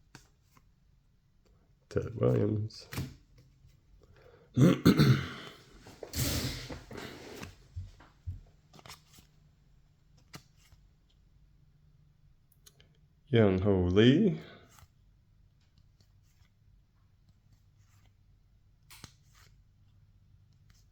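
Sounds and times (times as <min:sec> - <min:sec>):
man coughing: 0:04.6 - 0:06.7.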